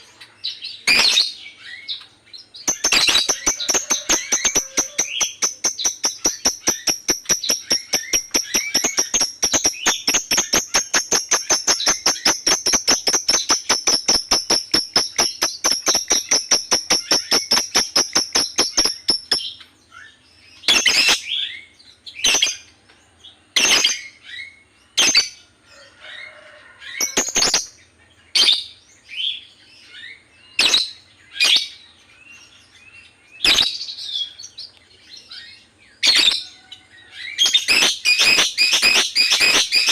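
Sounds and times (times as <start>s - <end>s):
lovebird chattering trill: 0.0s - 19.7s, 20.6s - 21.6s, 37.3s - 39.9s
lovebird sharp chirps: 0.0s - 22.7s, 27.0s - 27.7s, 28.3s - 31.8s, 33.4s - 34.6s, 35.3s - 36.5s, 37.3s - 39.9s.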